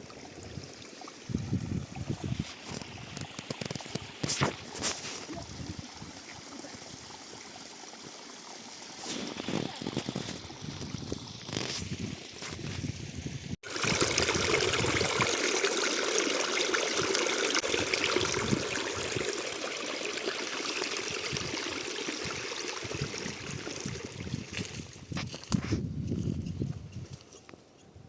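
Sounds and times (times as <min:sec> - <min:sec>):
stream water rushing: 0:13.6 - 0:24.4.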